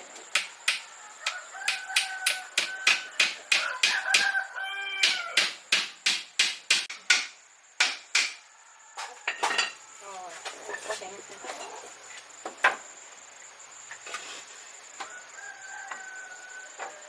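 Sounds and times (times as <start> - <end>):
sharp knocks: 0.3 - 0.9, 1.6 - 4.4, 5.0 - 8.4
chicken calling: 1.0 - 5.5.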